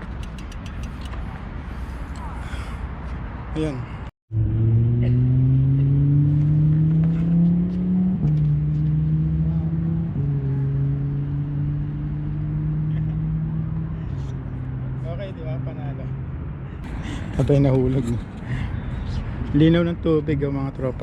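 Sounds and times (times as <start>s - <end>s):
engine accelerating: 4.3s - 13.9s.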